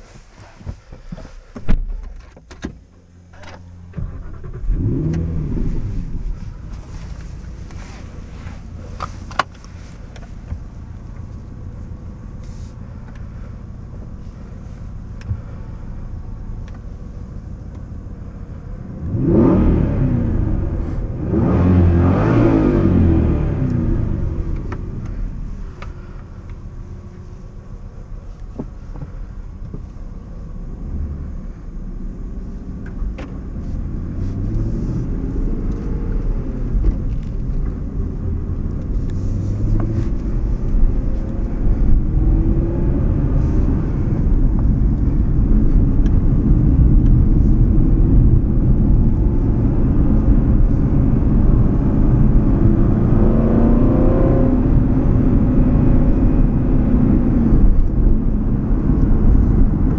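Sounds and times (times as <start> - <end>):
road rumble: 0.0 - 59.9
car engine accelerating: 2.8 - 59.9.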